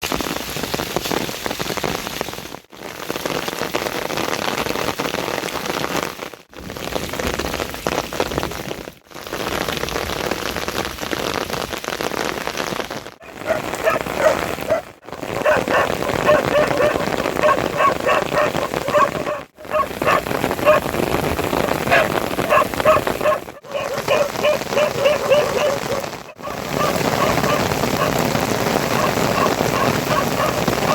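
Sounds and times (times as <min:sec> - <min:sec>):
heavy rain hissing: 0:09.3 - 0:30.9
short pitched animal calls: 0:13.2 - 0:30.9.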